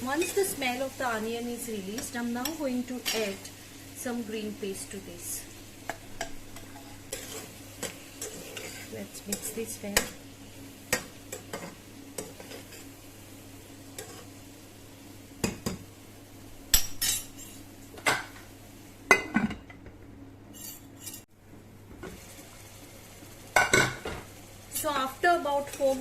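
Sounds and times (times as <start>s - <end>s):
spoon scraping metal pot: 6.6s - 9.0s.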